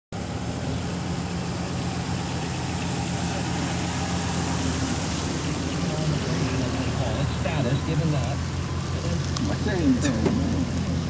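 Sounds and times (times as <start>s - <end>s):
low engine hum: 0.1s - 11.0s.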